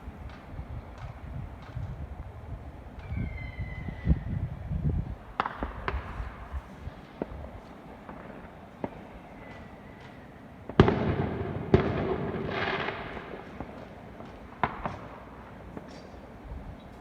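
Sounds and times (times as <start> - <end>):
small fireworks pops: 0.2 - 2.1, 5.3 - 16.4
fireworks crackle: 5.3 - 16.4
fireworks loud bangs: 5.4 - 6.5, 10.7 - 16.1.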